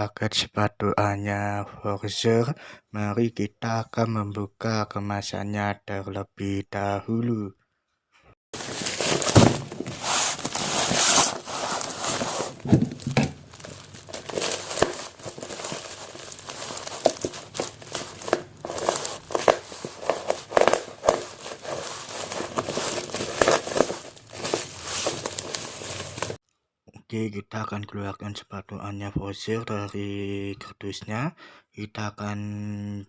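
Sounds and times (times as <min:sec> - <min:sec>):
package wrapping tearing and crinkling: 0:08.6 - 0:26.4.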